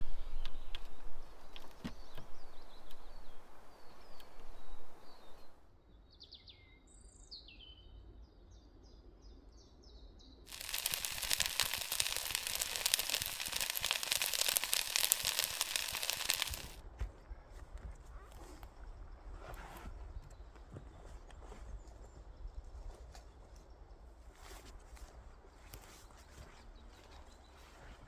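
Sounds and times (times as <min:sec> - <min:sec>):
loud hiss with fine crackle: 0:10.5 - 0:16.8
small bird chirping: 0:10.5 - 0:16.8.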